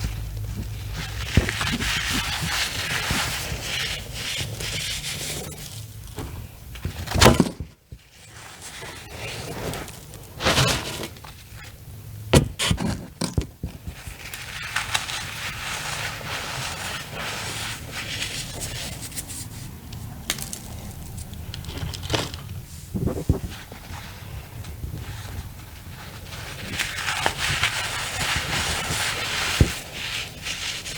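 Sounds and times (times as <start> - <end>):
crackly crumbling: 19.8 - 23.5
cornstarch chunks crunching by hand: 20.0 - 22.1.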